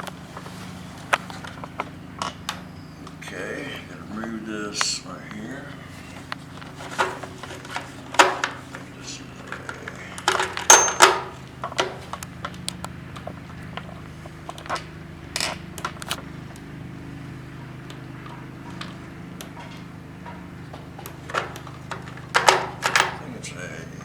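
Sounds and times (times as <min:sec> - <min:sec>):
hand tools clicking and knocking: 0:00.0 - 0:24.0
steady low hum: 0:00.0 - 0:24.0.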